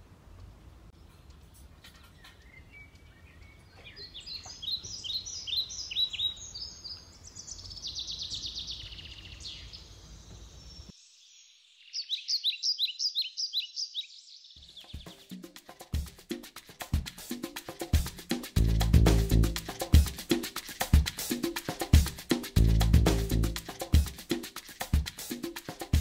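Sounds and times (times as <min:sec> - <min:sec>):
songbirds singing: 0:00.4 - 0:15.4
loud bird chirps: 0:02.1 - 0:15.4
low steady rumble: 0:18.6 - 0:19.6.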